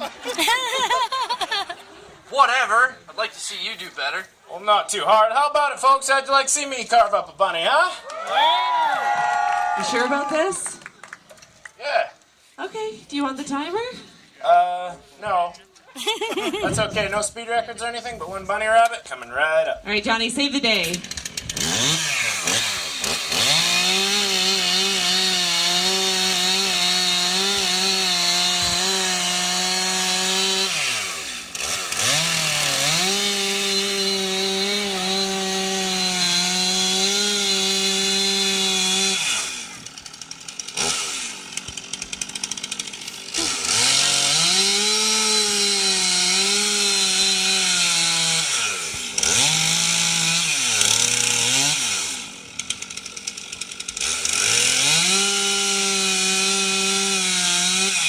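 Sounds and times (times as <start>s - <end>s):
chainsaw cutting wood: 9.2s - 11.6s, 20.2s - 58.0s.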